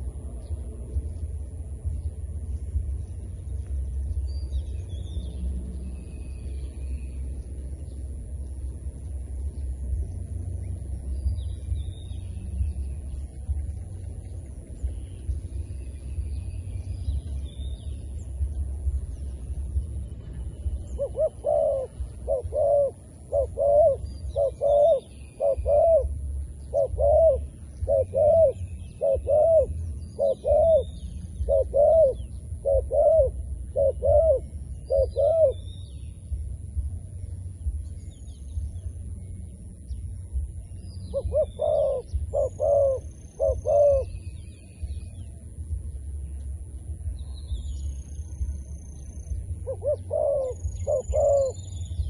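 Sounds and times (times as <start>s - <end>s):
small birds chirping: 0.0s - 52.0s
dove cooing: 20.6s - 35.7s, 41.1s - 44.3s, 49.5s - 52.0s.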